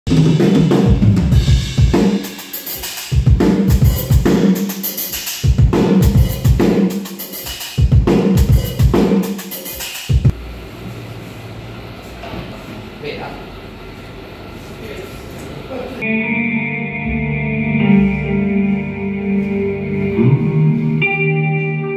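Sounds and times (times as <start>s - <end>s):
heavy metal drumming: 0.1s - 10.3s.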